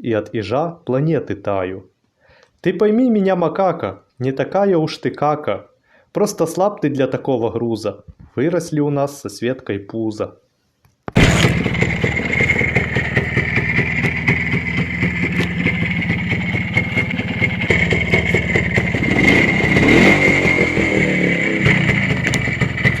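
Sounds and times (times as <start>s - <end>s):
two-stroke motorcycle engine running: 11.2s - 23.0s.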